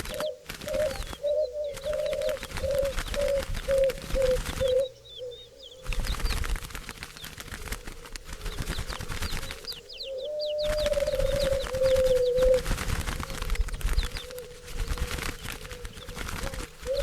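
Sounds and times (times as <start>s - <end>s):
dove long low coo: 0.0s - 6.0s, 7.5s - 17.0s
doves calling: 0.0s - 17.0s
wings flapping: 0.0s - 17.0s.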